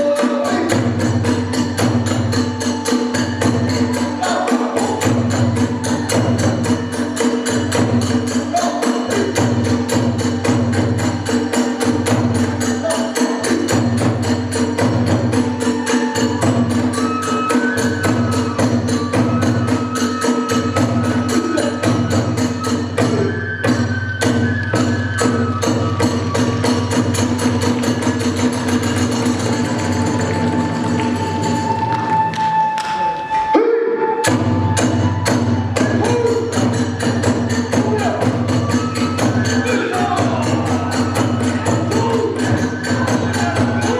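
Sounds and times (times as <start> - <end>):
drum beating: 0.0 - 43.9
hand cymbals: 0.0 - 43.9
bamboo flute long note: 15.1 - 28.1, 30.0 - 43.9.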